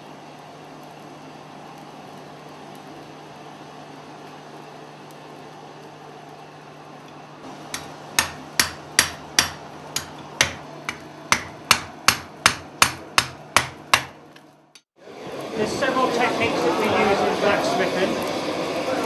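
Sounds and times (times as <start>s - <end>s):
steady hum: 0.0s - 19.0s
hammer striking an anvil: 7.7s - 14.2s.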